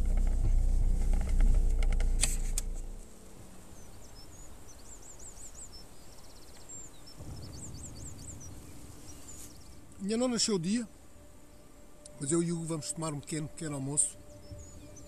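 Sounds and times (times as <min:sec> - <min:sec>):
car engine rumbling: 0:00.0 - 0:15.0
small bird chirping: 0:02.4 - 0:10.0, 0:14.1 - 0:15.0
buzzy bird trill: 0:02.7 - 0:15.0.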